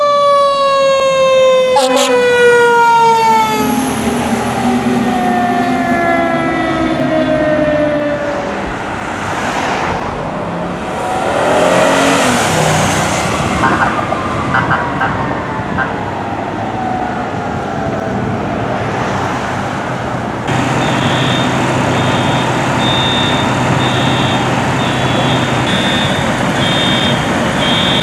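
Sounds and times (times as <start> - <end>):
fire engine siren winding down: 0.0 - 8.7, 10.9 - 18.6, 20.5 - 28.0
passing traffic noise: 0.0 - 28.0.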